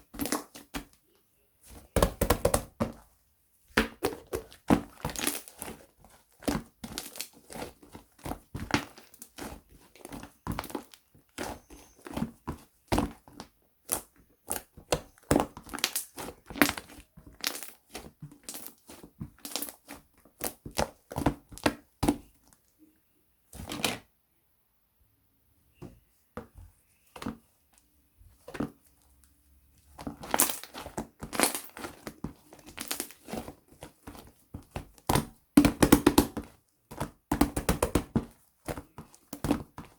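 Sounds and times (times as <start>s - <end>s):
slime popping and crackling: 3.8s - 22.3s, 29.9s - 39.9s.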